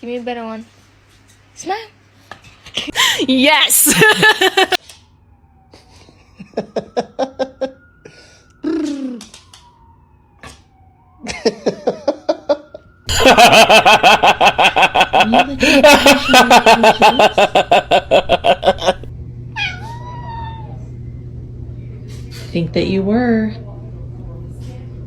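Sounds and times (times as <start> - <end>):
cat crying loudly: 19.5 - 20.9.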